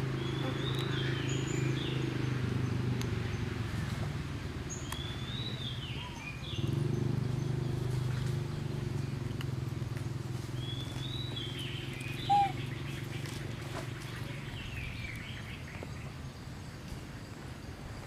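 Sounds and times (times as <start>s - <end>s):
bird twittering: 10.6s - 15.8s
short loud bird call: 12.2s - 12.7s.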